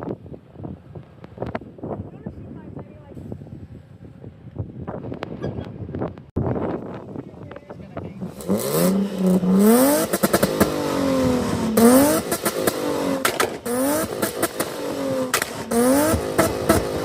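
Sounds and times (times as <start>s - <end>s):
car engine revving hard: 8.2s - 17.0s
exhaust cracks and pops: 11.8s - 17.0s.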